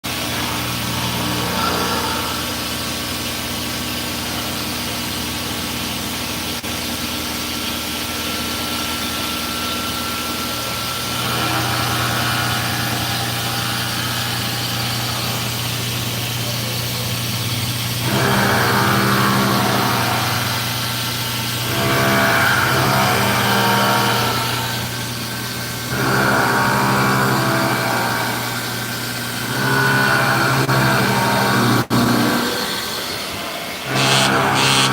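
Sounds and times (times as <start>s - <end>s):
cnc machine humming: 0.1s - 5.0s, 7.7s - 17.0s, 33.9s - 34.9s.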